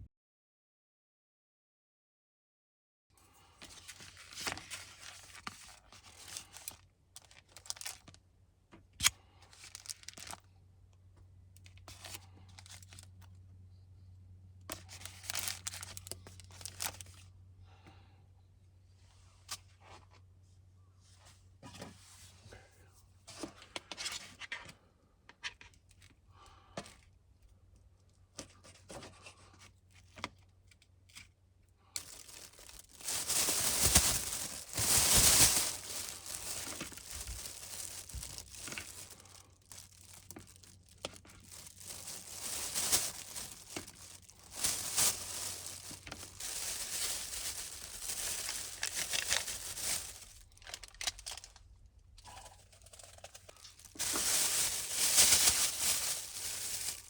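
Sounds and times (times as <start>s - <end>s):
material crinkling and tearing: 3.6s - 8.2s, 9.0s - 10.4s, 14.7s - 17.2s, 32.0s - 57.0s.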